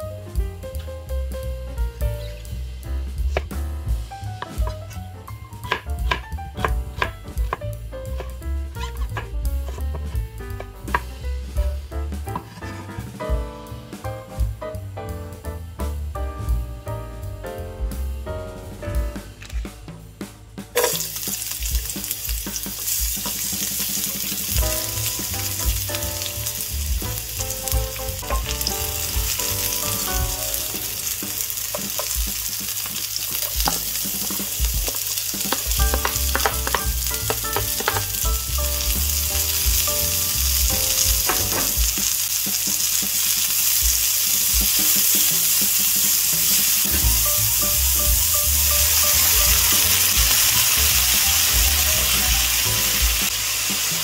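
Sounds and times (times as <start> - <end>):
onion sizzling in hot oil: 2.0 - 11.2, 20.8 - 54.0
utensil stirring and knocking pan: 3.1 - 11.4, 12.2 - 13.2, 20.7 - 54.0.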